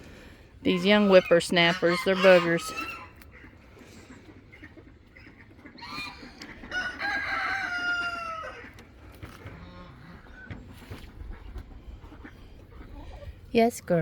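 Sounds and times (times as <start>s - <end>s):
chickens clucking: 0.6s - 13.5s
rooster crowing: 6.7s - 8.8s.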